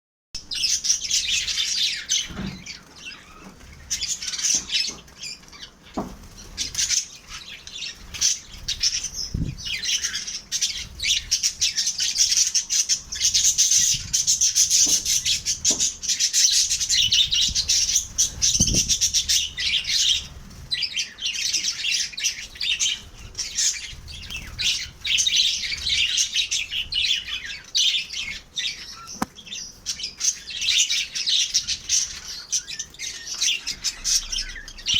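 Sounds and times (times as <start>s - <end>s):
lovebirds chirping and squawking: 0.4s - 34.9s
low thumps: 9.3s - 9.7s.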